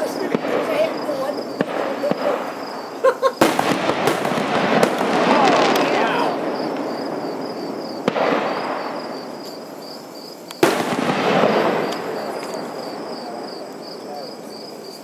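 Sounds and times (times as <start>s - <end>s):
firework bangs with echo: 0.0s - 14.5s
insects chirping: 0.0s - 15.0s.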